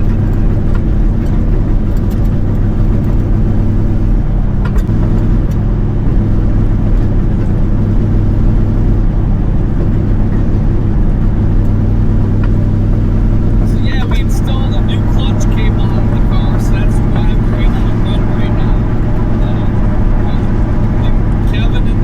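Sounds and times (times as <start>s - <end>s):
vehicle engine and road drone: 0.0s - 22.0s.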